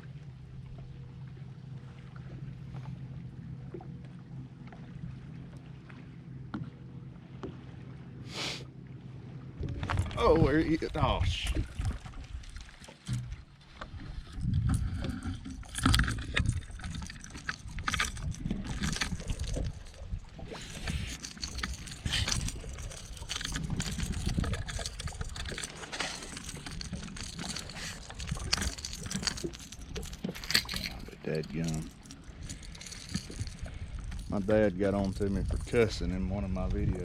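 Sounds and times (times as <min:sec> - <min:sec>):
water sloshing against boat: 0:00.0 - 0:37.0
handling knocks and clicks: 0:12.6 - 0:13.5, 0:14.3 - 0:35.8.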